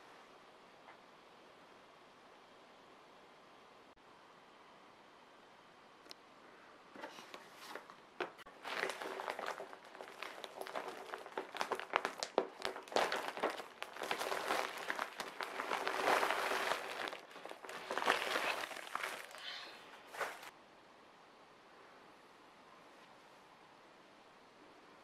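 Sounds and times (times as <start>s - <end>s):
crinkling and rustling: 6.9s - 20.6s.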